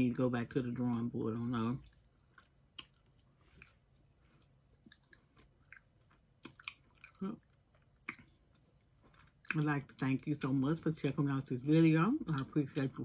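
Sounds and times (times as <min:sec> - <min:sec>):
person chewing candy: 0:01.8 - 0:13.0
lip smacks: 0:02.7 - 0:03.8, 0:04.4 - 0:07.2, 0:08.0 - 0:08.3.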